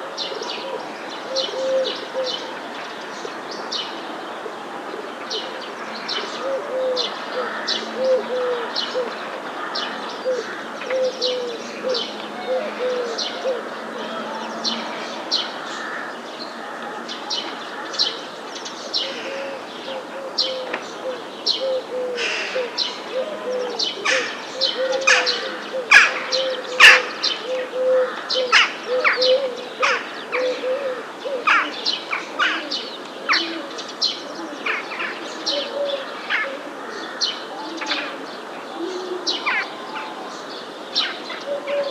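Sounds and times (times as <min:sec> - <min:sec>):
pigeon cooing: 0:00.0 - 0:02.6, 0:04.5 - 0:09.2, 0:10.2 - 0:14.8, 0:19.0 - 0:39.8, 0:41.4 - 0:41.9
background birds: 0:00.0 - 0:41.9
songbirds chirping: 0:00.0 - 0:41.9.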